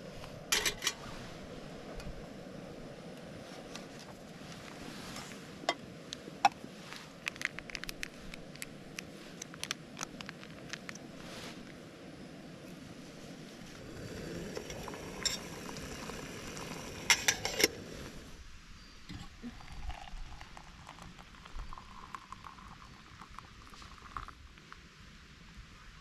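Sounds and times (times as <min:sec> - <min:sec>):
stove hissing: 0:13.5 - 0:18.4.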